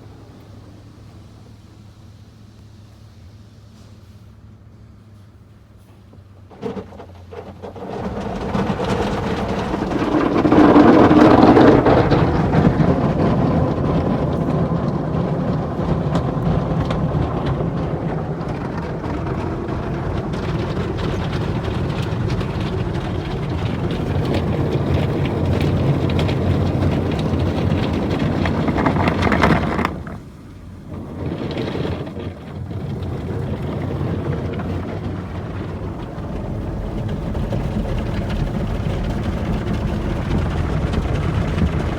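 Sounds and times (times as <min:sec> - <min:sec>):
car wash machinery: 0:00.0 - 0:41.9
car wash water spray: 0:00.0 - 0:41.9.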